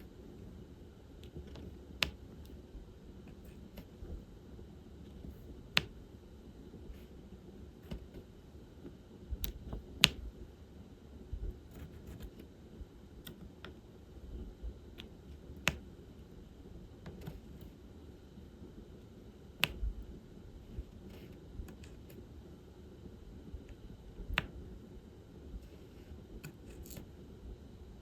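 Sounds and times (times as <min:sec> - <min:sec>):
drill pen tapping: 0:01.2 - 0:02.2.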